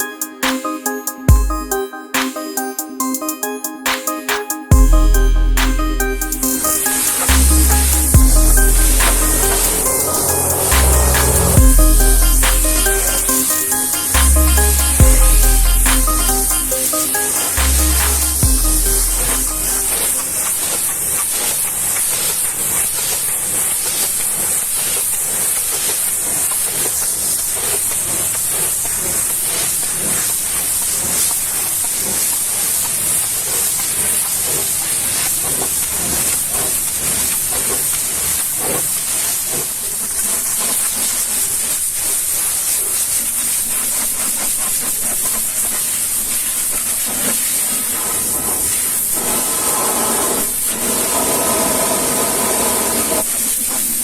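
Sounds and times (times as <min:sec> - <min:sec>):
steady hum: 0:04.7 - 0:20.6.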